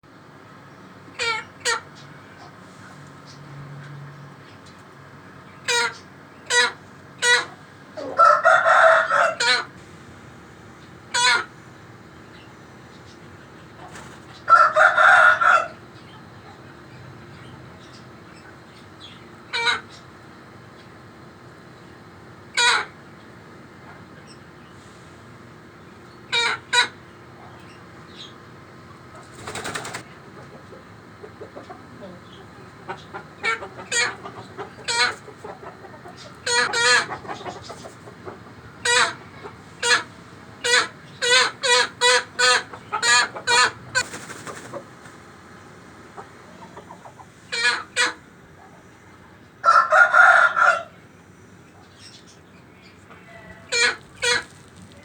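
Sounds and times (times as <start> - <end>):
chickens clucking: 0.5 - 55.0
chicken flapping wings: 29.2 - 30.1, 44.0 - 45.2.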